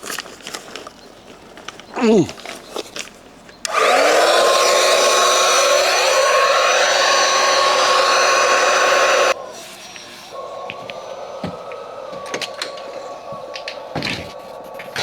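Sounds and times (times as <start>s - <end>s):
electric air pump running: 3.7s - 9.4s.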